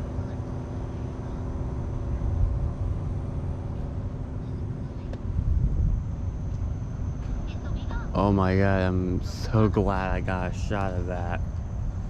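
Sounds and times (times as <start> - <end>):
low rumbling outdoor noise: 0.0 - 12.0
vehicle engine humming: 0.0 - 12.0.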